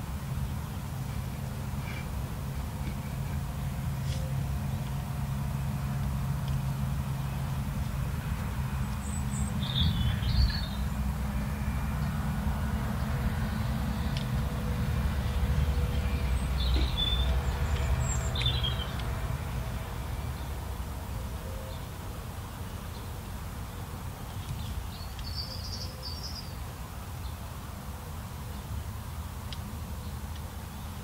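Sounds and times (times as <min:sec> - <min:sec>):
steady low rumble: 0:00.0 - 0:25.0
small birds chirping: 0:06.0 - 0:11.1, 0:13.0 - 0:19.2, 0:22.8 - 0:27.4.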